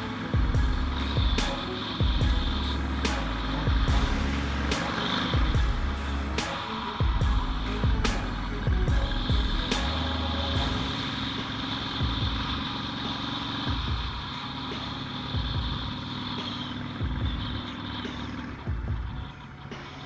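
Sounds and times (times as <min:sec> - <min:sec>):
motorcycle engine running: 0:00.0 - 0:20.0
irregular low thumps: 0:00.4 - 0:06.4, 0:07.0 - 0:10.9.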